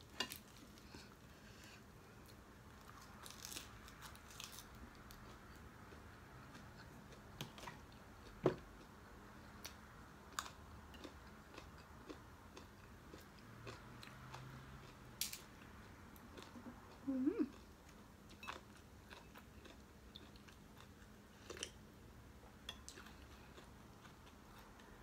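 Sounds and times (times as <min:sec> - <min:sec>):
chewing and biting food: 0:09.6 - 0:21.8.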